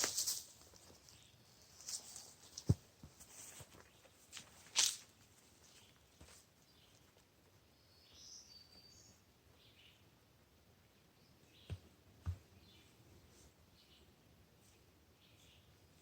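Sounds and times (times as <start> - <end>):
outdoor rustling and handling: 0.0 - 7.6
bird chirping: 7.7 - 10.1, 10.9 - 13.0, 13.7 - 16.0.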